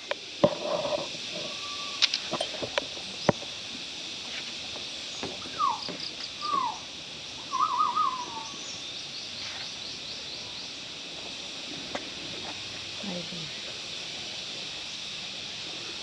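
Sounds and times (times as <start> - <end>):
steady high hiss: 0.0 - 16.0
bird calling: 1.3 - 2.2, 5.1 - 10.7.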